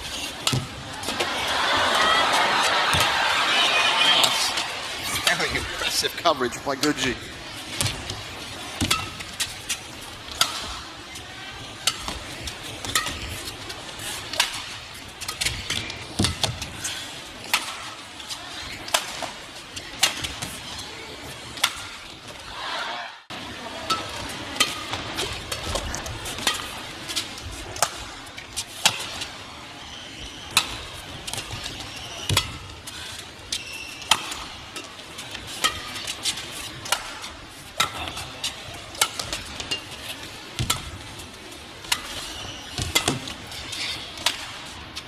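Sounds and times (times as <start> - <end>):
arena background noise: 0.0 - 45.0
badminton racket hitting shuttlecock: 0.4 - 1.2, 7.7 - 11.0, 11.6 - 16.8, 17.4 - 19.4, 21.5 - 22.0, 23.8 - 28.2, 28.8 - 29.3, 30.5 - 33.2, 33.8 - 41.0, 41.8 - 44.7.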